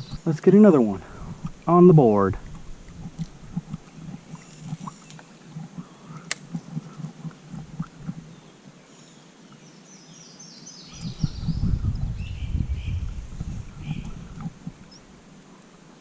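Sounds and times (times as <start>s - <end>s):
bird chirping: 0.0s - 0.5s, 8.0s - 15.1s
soft low knocks: 11.0s - 15.1s.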